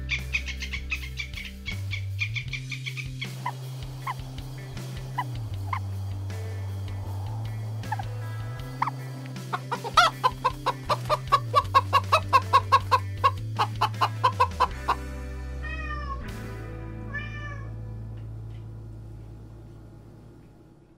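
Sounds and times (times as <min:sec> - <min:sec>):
chickens clucking: 0:00.0 - 0:06.0, 0:07.7 - 0:15.0
background music: 0:00.0 - 0:20.8
cat meowing: 0:15.6 - 0:16.3, 0:17.0 - 0:17.8.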